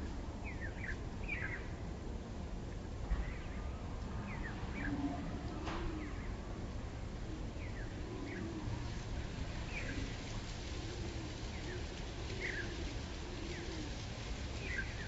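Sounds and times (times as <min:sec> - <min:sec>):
small birds chirping: 0:09.6 - 0:10.1, 0:14.6 - 0:15.0.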